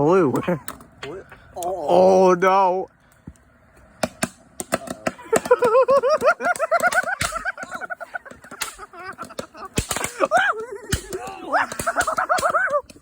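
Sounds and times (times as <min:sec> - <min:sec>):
fireworks crackling pops: 0:04.1 - 0:13.0.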